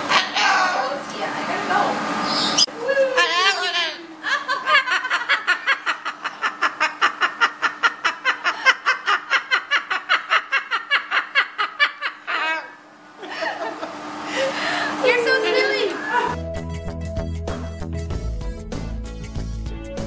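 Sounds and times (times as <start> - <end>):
cockatoo laughing: 2.8 - 14.0.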